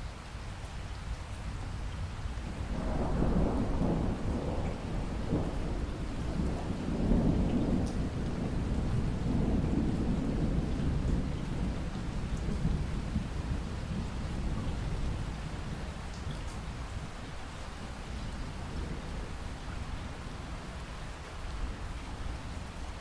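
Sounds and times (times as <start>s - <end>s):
rain falling: 0.0s - 23.0s
thunder rumbling: 2.5s - 16.0s.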